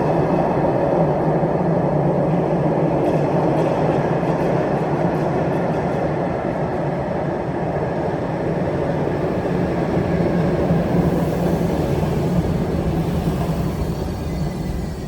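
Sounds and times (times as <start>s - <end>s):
tram rumbling on track: 0.0s - 15.0s.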